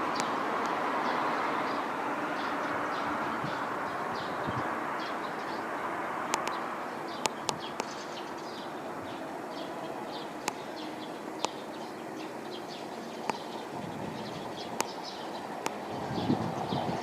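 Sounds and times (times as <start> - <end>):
small birds chirping: 0.0 - 17.0
sharp clicks: 6.3 - 6.6, 14.8 - 15.0.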